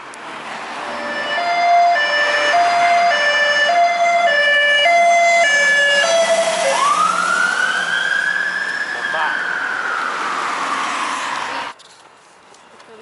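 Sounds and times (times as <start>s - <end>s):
two-tone emergency siren: 0.8s - 10.9s.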